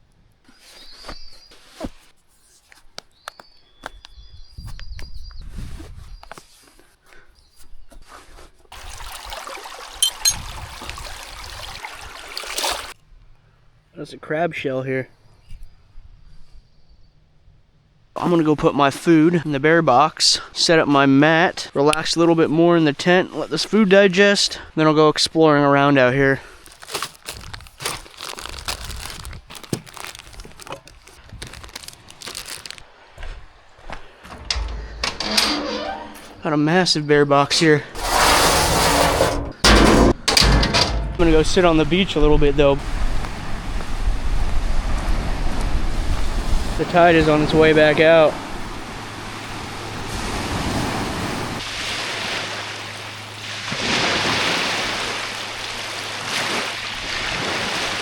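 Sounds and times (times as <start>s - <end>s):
plastic packaging crinkling: 26.5s - 32.9s
low-pitched scraping: 34.2s - 36.5s, 38.0s - 42.0s
sea waves washing onto beach: 41.4s - 58.0s.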